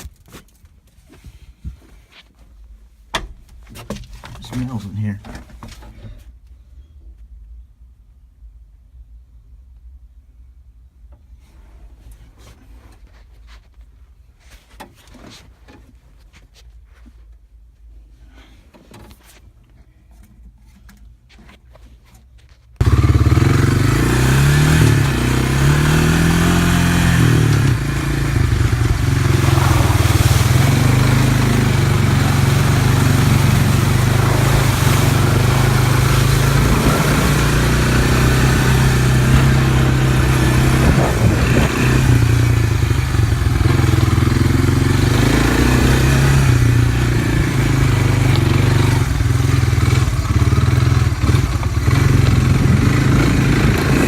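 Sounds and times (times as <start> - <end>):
vehicle engine revving: 22.8 - 54.0.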